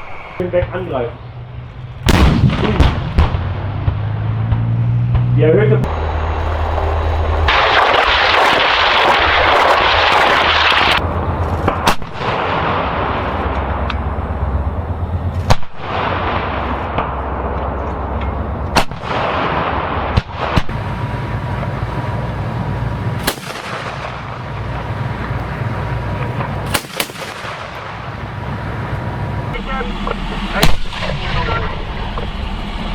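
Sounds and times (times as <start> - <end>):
armoured vehicle engine rumble: 0.0 - 32.9
loud rushing blast: 1.2 - 17.6, 18.7 - 29.6, 30.2 - 32.9
heavy guns firing: 2.1 - 4.1, 18.8 - 29.5.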